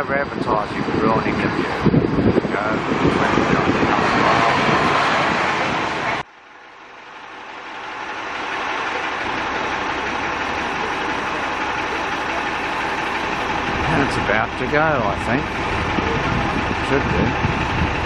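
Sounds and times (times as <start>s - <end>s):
wind noise on microphone: 0.0s - 6.2s, 13.2s - 18.0s
bus idling: 0.0s - 18.0s.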